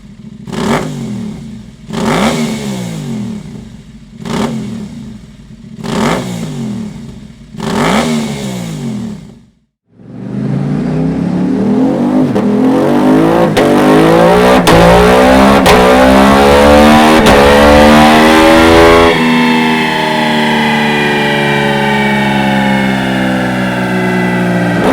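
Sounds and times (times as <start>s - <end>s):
motorcycle engine revving: 0.0s - 24.9s
quickshifter upshifts: 10.0s - 24.9s.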